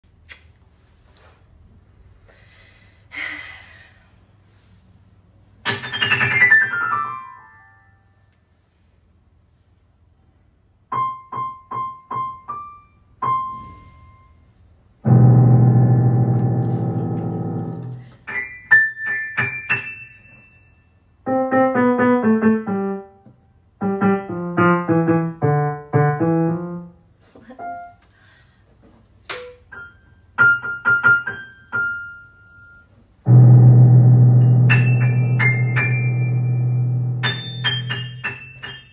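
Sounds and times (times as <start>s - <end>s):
piano notes and chords: 5.6s - 8.0s, 10.9s - 20.6s, 21.2s - 27.0s, 27.6s - 28.0s, 29.4s - 38.9s
sustained low piano chord: 15.0s - 18.0s.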